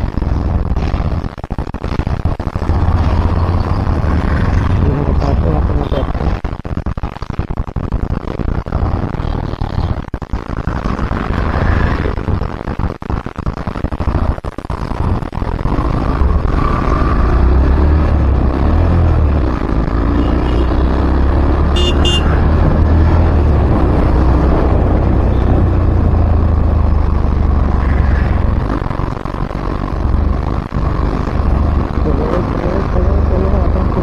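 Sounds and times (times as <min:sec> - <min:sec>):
road traffic rumble: 0:00.0 - 0:06.6, 0:14.0 - 0:34.0
wind: 0:15.4 - 0:34.0
vehicle horn toot: 0:20.2 - 0:20.8, 0:21.7 - 0:22.4.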